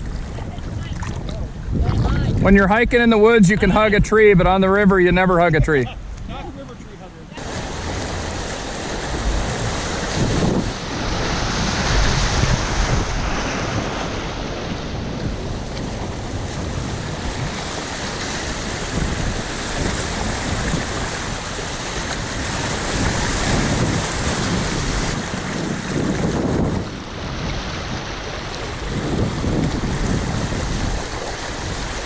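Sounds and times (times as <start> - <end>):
wind noise on microphone: 0.0 - 32.0
river water rushing: 6.9 - 32.0.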